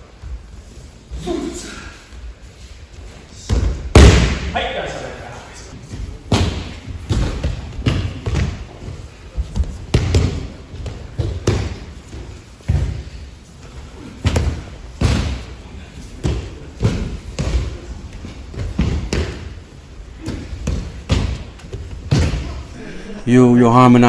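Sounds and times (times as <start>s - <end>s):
bodies thudding on mats: 3.4s - 4.5s, 5.8s - 22.8s.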